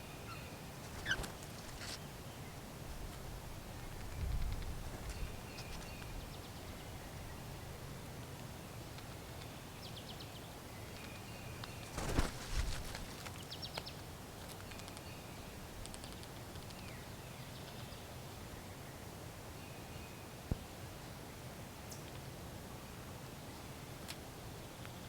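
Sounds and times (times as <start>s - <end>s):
outdoor background noise: 0.0s - 25.0s
brief rustle: 11.9s - 13.4s.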